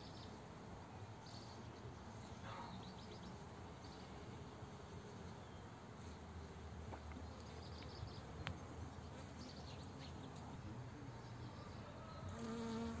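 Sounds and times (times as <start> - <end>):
bee buzzing: 12.3 - 13.0.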